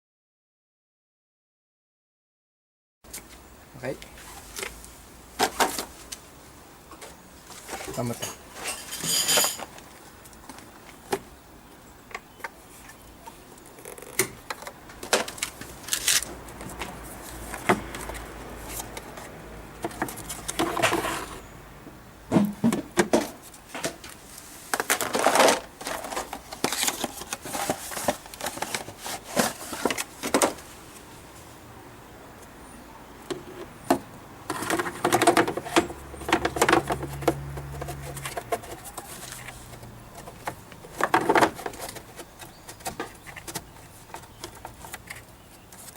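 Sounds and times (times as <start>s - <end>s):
plastic parts clicking and knocking: 33.3s - 45.9s.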